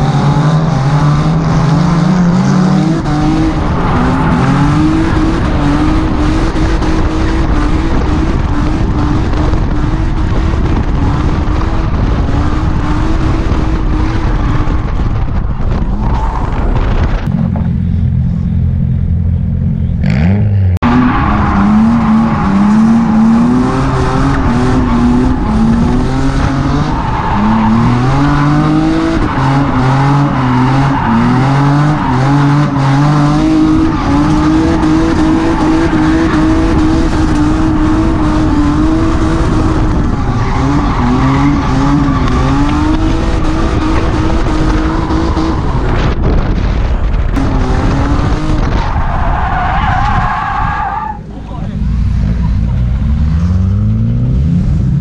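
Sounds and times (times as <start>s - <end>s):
tires squealing: 0.0s - 17.3s, 20.0s - 53.7s
turbocharged car engine revving: 0.0s - 18.0s, 19.8s - 55.0s.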